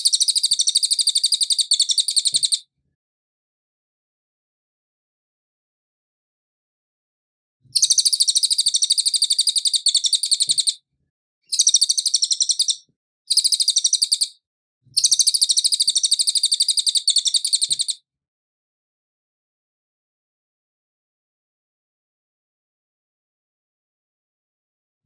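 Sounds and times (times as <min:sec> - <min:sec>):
bird trilling: 0:00.0 - 0:02.6, 0:07.8 - 0:10.8, 0:11.5 - 0:14.3, 0:15.0 - 0:18.0.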